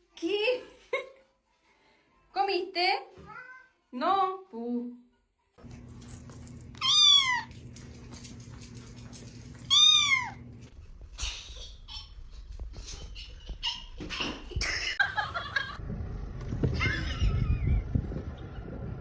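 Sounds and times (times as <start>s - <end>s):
cat meowing: 6.8s - 7.6s, 9.7s - 10.4s.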